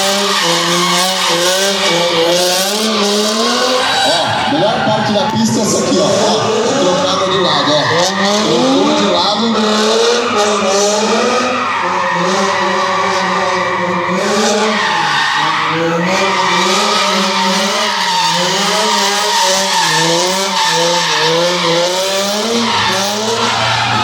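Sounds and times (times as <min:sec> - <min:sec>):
tyre screech: 0:00.0 - 0:09.2, 0:10.0 - 0:24.0
car engine at high revs: 0:00.0 - 0:24.0.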